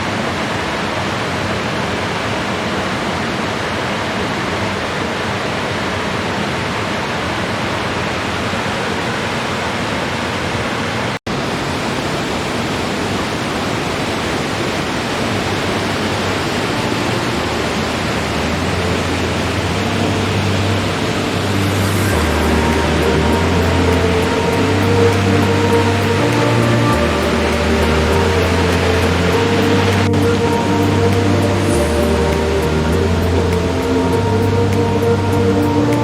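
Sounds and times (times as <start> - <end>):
waterfall rushing: 0.0 - 36.0
low steady hum: 15.5 - 36.0.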